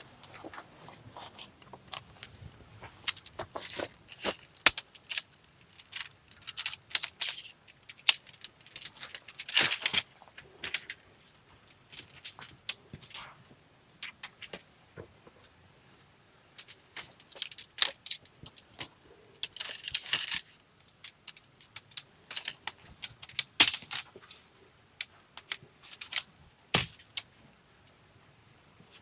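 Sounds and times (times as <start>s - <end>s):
rustling: 0.1s - 27.4s
gear handling clicks and clinks: 3.0s - 11.0s, 16.6s - 24.4s, 25.4s - 27.3s.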